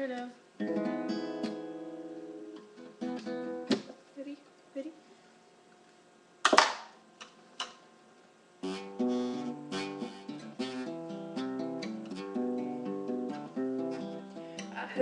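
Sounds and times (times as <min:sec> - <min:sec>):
acoustic guitar chords strummed: 0:00.6 - 0:03.9, 0:08.6 - 0:15.0.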